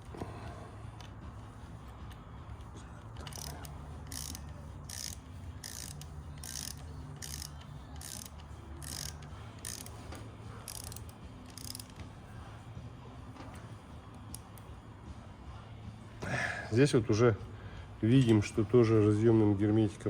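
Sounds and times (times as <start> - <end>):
steady low hum: 0.0 - 20.0
ratchet wrench clicking: 3.2 - 12.1, 14.1 - 14.7.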